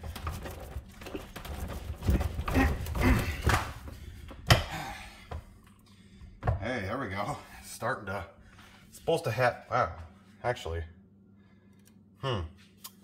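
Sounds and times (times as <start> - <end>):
man grunting and breathing heavily: 2.0 - 3.8, 4.5 - 5.4, 12.2 - 12.6.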